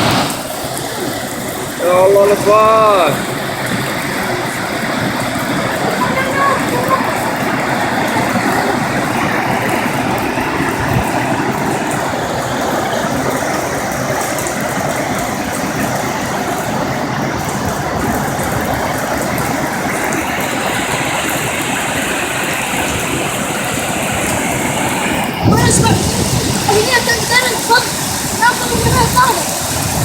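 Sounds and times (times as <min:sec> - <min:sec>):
torrential rain pouring: 0:00.0 - 0:30.0
water rushing over ground: 0:00.0 - 0:30.0.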